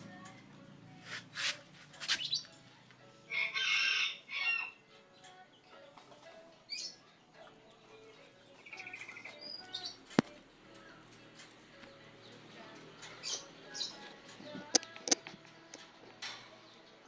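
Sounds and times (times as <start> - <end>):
rooster crowing: 3.3 - 4.8.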